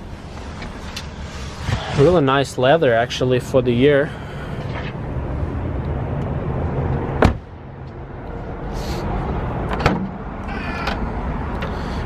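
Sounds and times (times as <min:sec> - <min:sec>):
steady low rumble: 0:00.0 - 0:12.0
car door shutting: 0:06.9 - 0:07.4.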